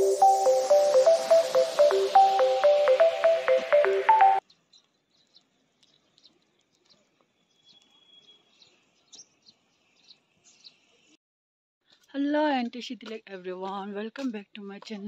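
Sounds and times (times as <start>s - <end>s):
faint birds chirping: 4.4s - 11.2s.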